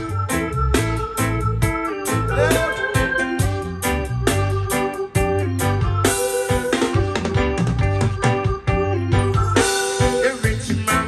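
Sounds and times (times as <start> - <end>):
guitar-led music with bass and beat: 0.0 - 11.0.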